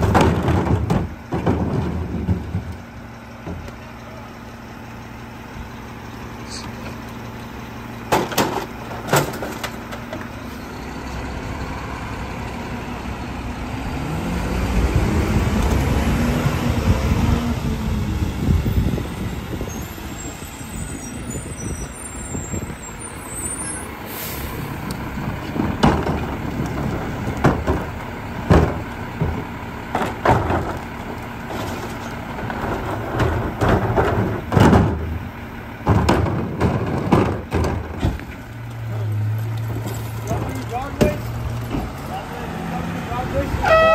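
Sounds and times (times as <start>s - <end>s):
sharp clanks and bangs: 0.0s - 3.7s, 8.1s - 10.3s, 25.4s - 38.4s
diesel engine revving: 0.0s - 43.9s.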